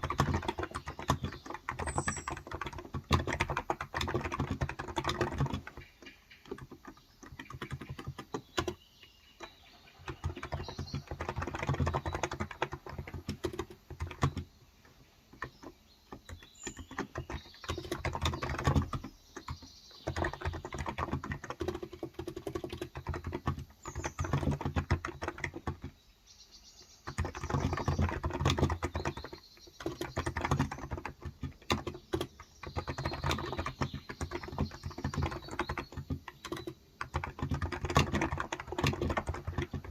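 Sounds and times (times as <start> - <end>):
faint bird chirps: 0.0 - 2.9, 4.2 - 39.9
keyboard typing: 0.0 - 8.8, 9.4 - 14.6, 15.3 - 26.0, 27.1 - 39.9.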